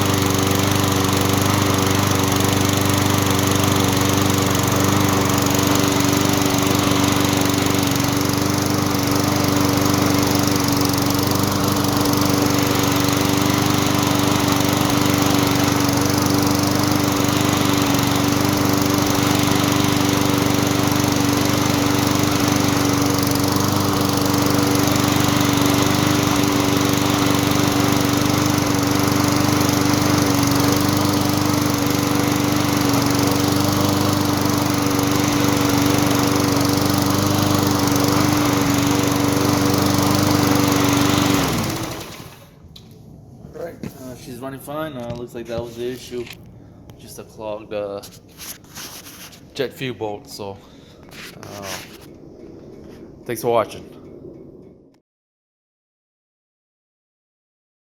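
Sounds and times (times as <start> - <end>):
lawn mower engine running: 0.0 - 43.0, 50.8 - 52.1.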